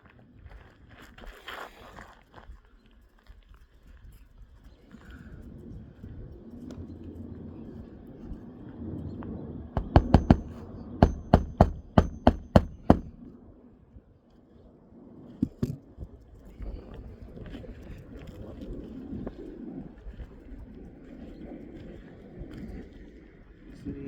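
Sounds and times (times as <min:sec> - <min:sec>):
hammer striking nails: 0:09.8 - 0:13.3.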